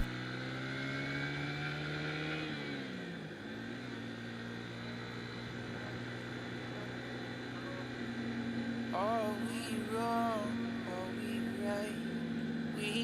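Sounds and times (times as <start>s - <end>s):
motorcycle engine running: 0.0s - 0.6s.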